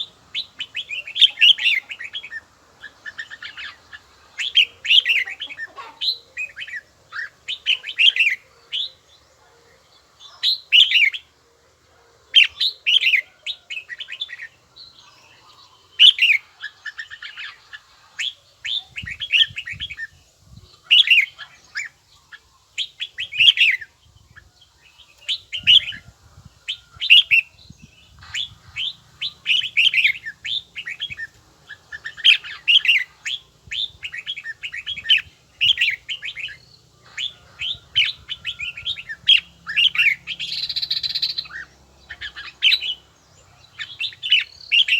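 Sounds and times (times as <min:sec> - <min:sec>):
bulbul singing: 0:00.0 - 0:11.4, 0:12.3 - 0:44.9.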